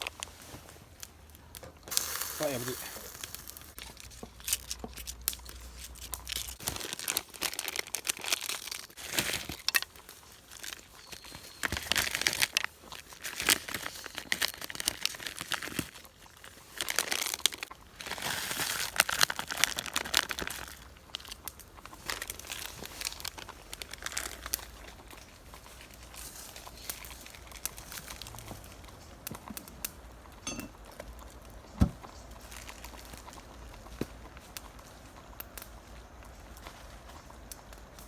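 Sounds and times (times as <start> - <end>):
packaging crinkling: 0.0 - 28.9.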